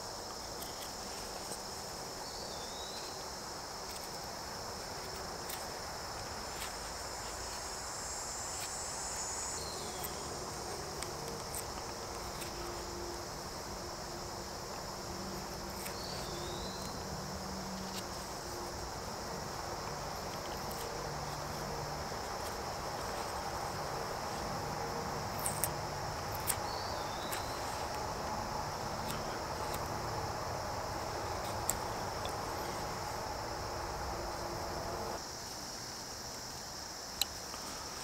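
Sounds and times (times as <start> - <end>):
crickets trilling: 0.0 - 38.0.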